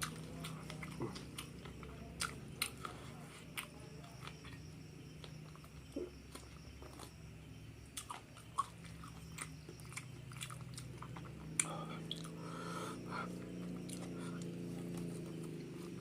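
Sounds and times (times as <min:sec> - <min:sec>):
low steady hum: 0:00.0 - 0:16.0
person chewing crunchy food: 0:00.0 - 0:16.0.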